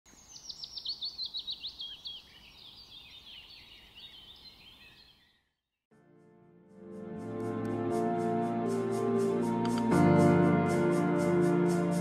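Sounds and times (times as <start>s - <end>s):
birds chirping: 0.1s - 5.6s.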